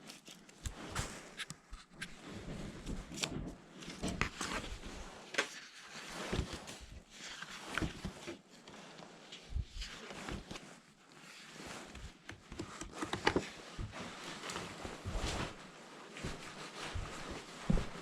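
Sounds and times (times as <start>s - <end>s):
rustling: 0.0s - 18.0s
footsteps on rough ground: 16.2s - 18.0s.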